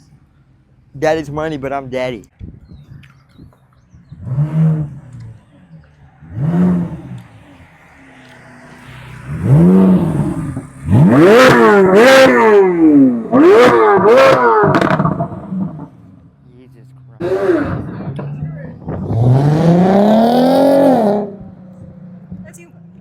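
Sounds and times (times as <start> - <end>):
car engine revving: 4.0 - 23.0
exhaust cracks: 9.2 - 16.3, 17.2 - 22.5.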